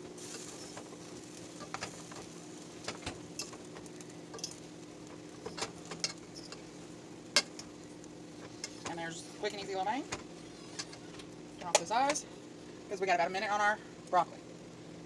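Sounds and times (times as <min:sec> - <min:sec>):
light sizzle: 0:00.0 - 0:15.0
utensils scraping a pan: 0:10.4 - 0:11.2.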